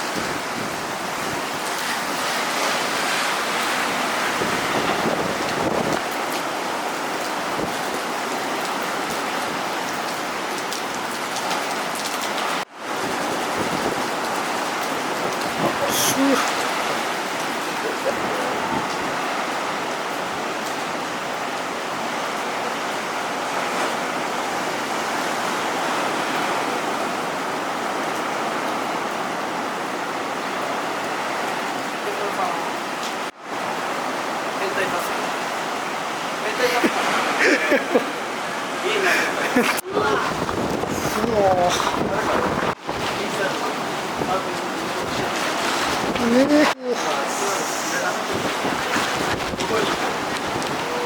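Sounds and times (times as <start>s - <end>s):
surf: 0.0s - 10.0s, 10.6s - 29.2s, 30.0s - 51.0s
heavy rain hissing: 15.0s - 19.1s, 34.6s - 51.0s.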